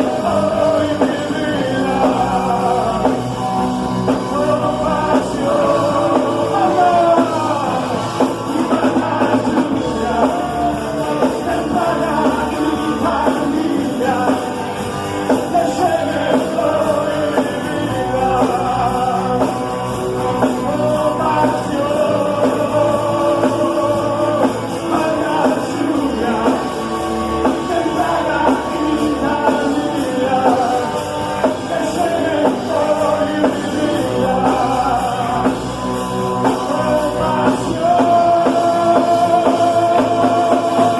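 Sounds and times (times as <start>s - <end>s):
sliding melodic lead line: 0.0s - 40.9s
worship band music: 0.0s - 40.9s.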